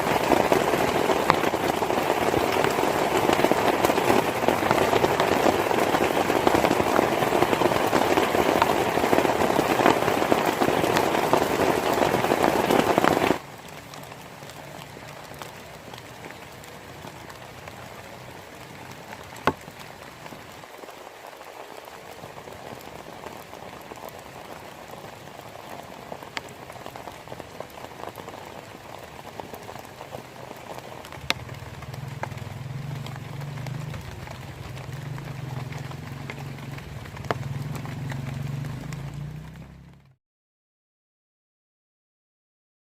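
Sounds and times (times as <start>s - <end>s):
heavy rain hissing: 0.0s - 40.0s.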